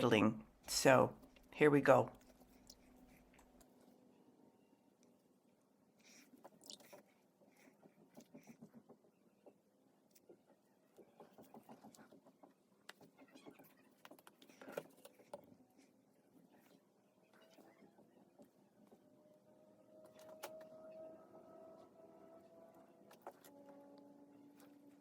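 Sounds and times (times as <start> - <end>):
paintbrush scratching and tapping: 6.4 - 15.5.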